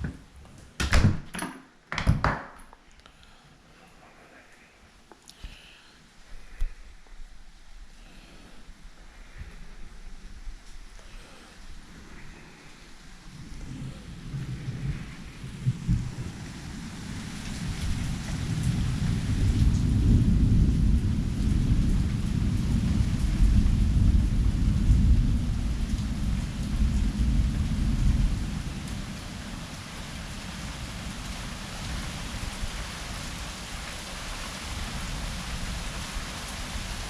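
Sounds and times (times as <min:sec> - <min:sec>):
heavy rain hissing: 0:03.7 - 0:37.0
rolling thunder: 0:13.2 - 0:37.0.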